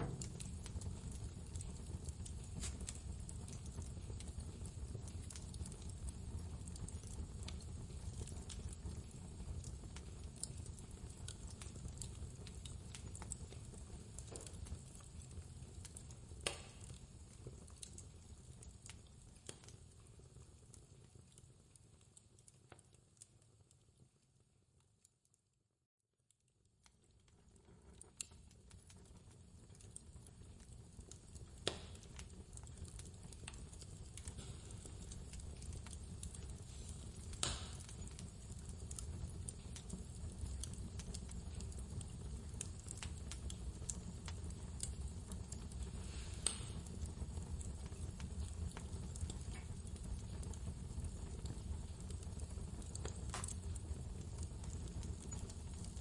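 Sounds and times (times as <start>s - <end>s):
wood fire crackling: 0.0s - 25.2s, 26.3s - 56.0s
sharp pops: 37.4s - 37.8s.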